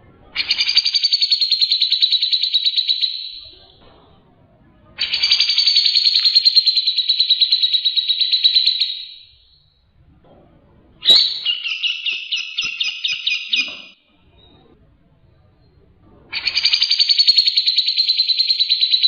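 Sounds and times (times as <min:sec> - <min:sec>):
bulbul singing trilled phrases: 0:11.0 - 0:14.0.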